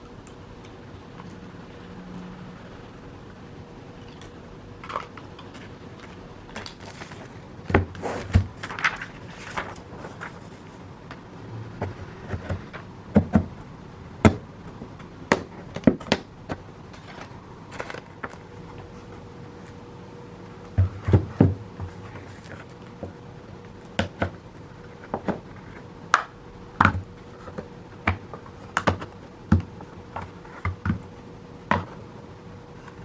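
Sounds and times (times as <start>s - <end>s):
faint steady hum: 0.0s - 33.0s
knocks and clicks of objects handled: 20.7s - 32.0s.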